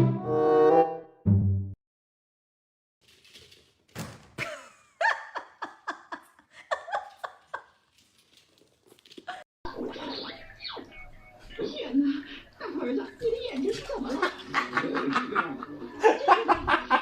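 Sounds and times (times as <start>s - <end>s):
person laughing: 4.4s - 7.7s.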